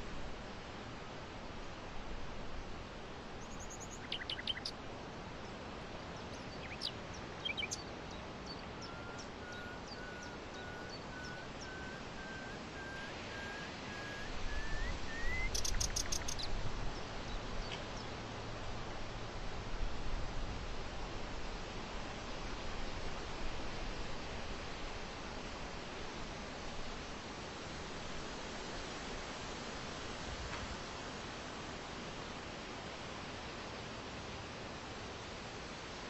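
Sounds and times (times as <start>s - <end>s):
steady outdoor hiss: 0.0s - 36.0s
birds chirping: 3.4s - 4.7s, 6.2s - 7.9s, 14.5s - 16.5s
rising evenly spaced bird notes: 3.4s - 4.7s, 6.3s - 7.9s, 8.5s - 16.5s.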